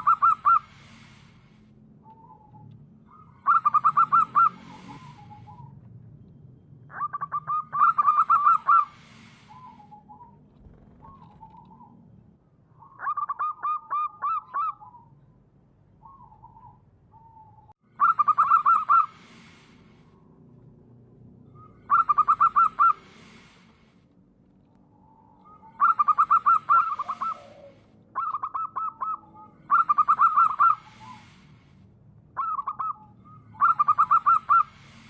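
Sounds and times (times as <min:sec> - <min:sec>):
dove cooing: 0:00.0 - 0:01.1, 0:03.4 - 0:05.7, 0:06.9 - 0:12.0, 0:16.0 - 0:19.6, 0:21.6 - 0:23.6, 0:25.4 - 0:31.4, 0:32.4 - 0:35.0.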